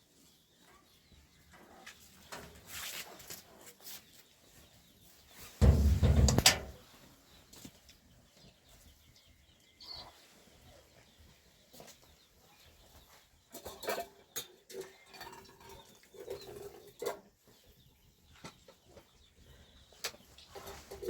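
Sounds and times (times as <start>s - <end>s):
farmyard animal calls: 0.0s - 21.0s
sharp knocks and clicks: 5.6s - 6.8s.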